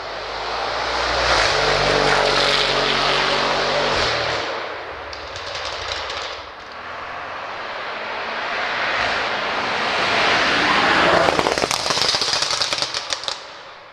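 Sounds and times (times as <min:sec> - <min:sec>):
exhaust crackles and pops: 0:05.1 - 0:06.8, 0:10.9 - 0:13.9.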